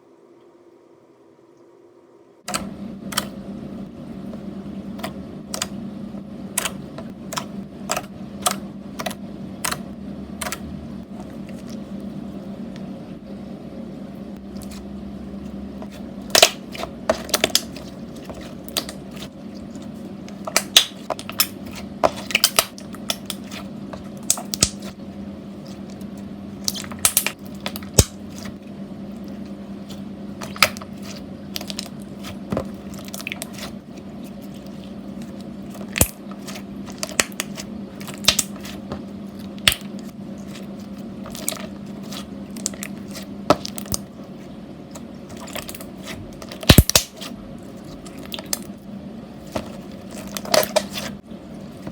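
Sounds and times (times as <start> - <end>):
low hum: 0.0 - 51.9
slime squished by hand: 15.8 - 25.0, 29.2 - 44.1, 49.4 - 51.2.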